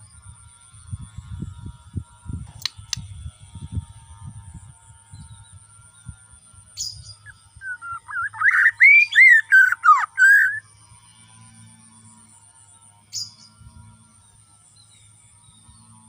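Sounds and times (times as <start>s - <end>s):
bird chirp: 6.8s - 10.7s, 13.1s - 16.0s
bird whistled song: 6.8s - 10.7s, 13.1s - 13.6s.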